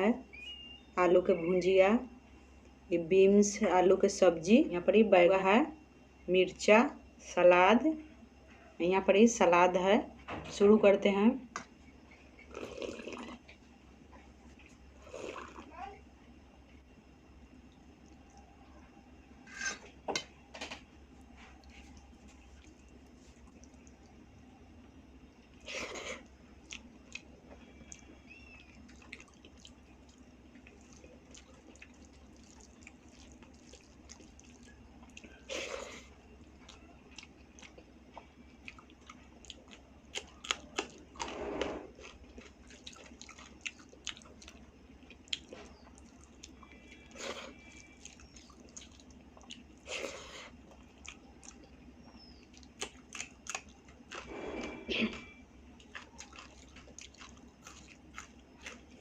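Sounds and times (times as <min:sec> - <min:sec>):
person chewing food: 0:12.4 - 0:13.6, 0:14.2 - 0:15.6, 0:21.1 - 0:24.3, 0:25.2 - 0:59.0.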